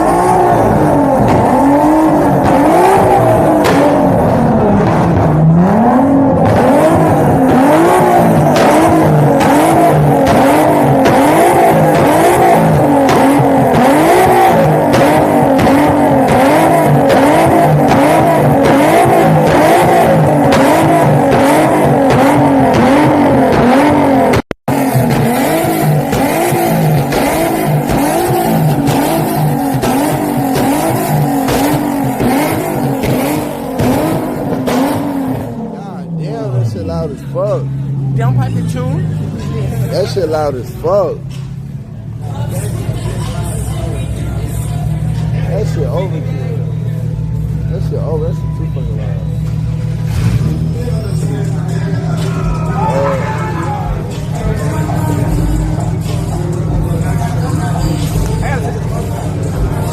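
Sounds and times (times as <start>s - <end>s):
car engine revving high: 0.0s - 59.9s.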